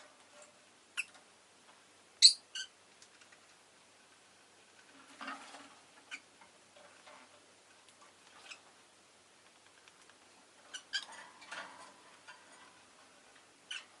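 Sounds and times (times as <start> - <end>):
lovebird chirping: 2.2 - 2.7.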